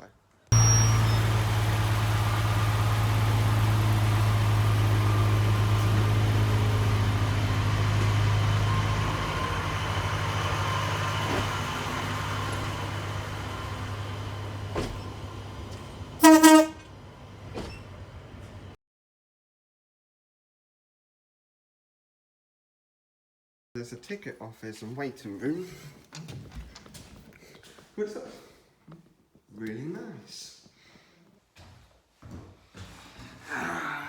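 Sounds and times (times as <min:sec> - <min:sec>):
diesel train engine droning: 0:00.5 - 0:18.8
train horn toot: 0:16.2 - 0:16.9.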